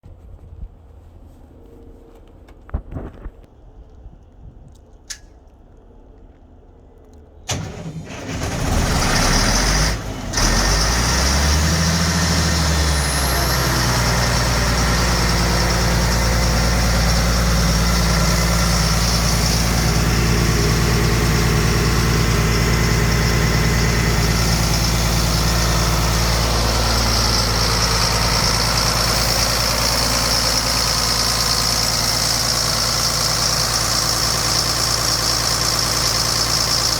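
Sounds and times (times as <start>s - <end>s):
engine starter cranking: 7.5s - 36.9s
air compressor engine running: 11.6s - 36.9s.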